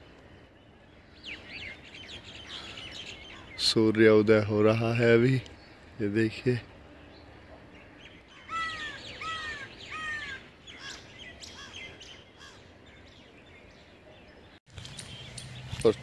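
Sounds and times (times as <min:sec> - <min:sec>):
loud arched bird calls: 0:01.0 - 0:03.9, 0:07.0 - 0:13.9.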